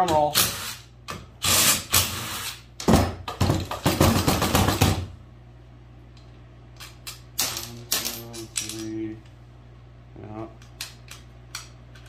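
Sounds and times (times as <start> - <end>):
low steady hum: 0.0 - 12.0
rapid knocking on hard surface: 2.9 - 5.0.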